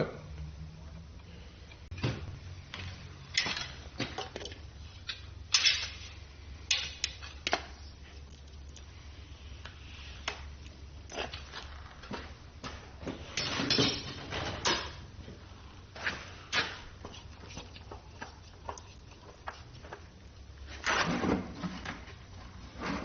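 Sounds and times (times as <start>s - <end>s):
steady low hum: 0.0s - 23.0s
metal tools clinking and knocking: 3.3s - 6.1s.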